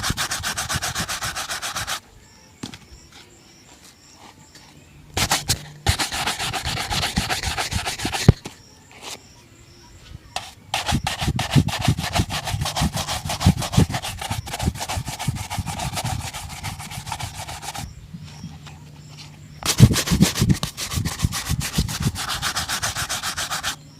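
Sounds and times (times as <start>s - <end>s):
shoe brush rubbing leather: 0.0s - 2.0s, 5.2s - 8.5s, 10.4s - 18.4s, 19.6s - 23.8s.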